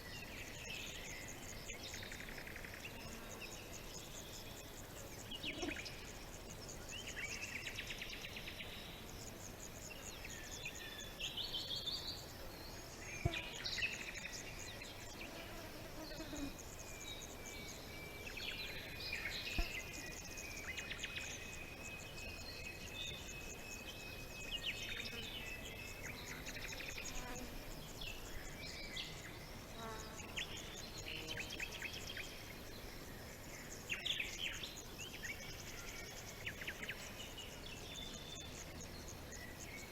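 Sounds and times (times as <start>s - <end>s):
songbirds chirping and trilling: 0.0s - 39.9s
insect buzzing: 0.5s - 22.1s, 23.2s - 33.2s.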